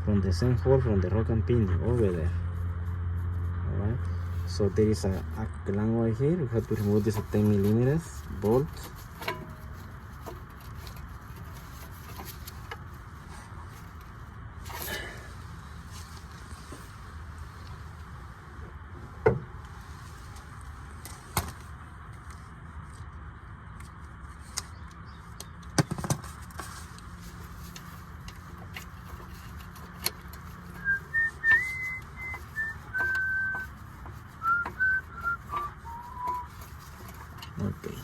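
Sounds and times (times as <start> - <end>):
person whistling notes: 30.8 - 33.8, 34.4 - 36.6.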